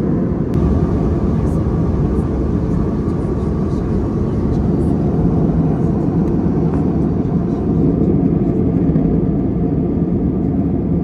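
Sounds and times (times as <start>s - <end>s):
aircraft cabin engine rumble: 0.0s - 11.0s
airflow past fuselage: 0.1s - 8.4s.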